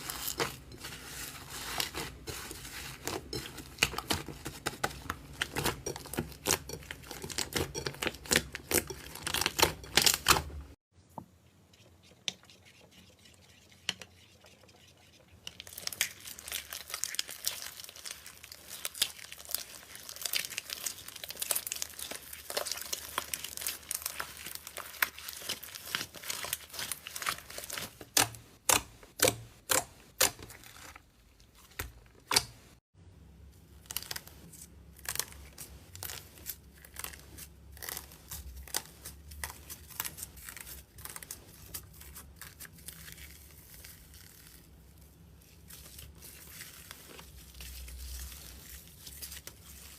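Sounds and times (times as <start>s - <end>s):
slime crackling: 15.6s - 31.5s.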